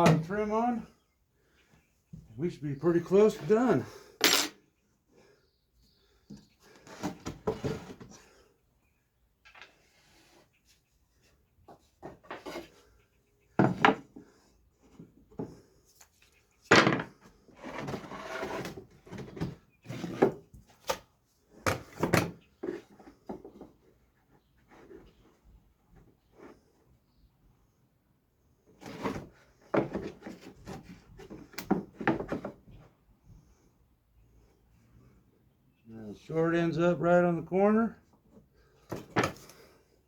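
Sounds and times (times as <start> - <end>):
wood scraping on wood: 11.7 - 12.9, 17.4 - 21.0, 28.8 - 32.5.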